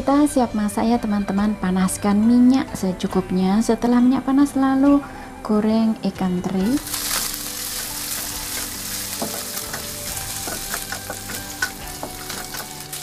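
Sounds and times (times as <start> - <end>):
fish frying in hot oil: 6.8 - 13.0
wooden spatula stirring: 6.8 - 13.0.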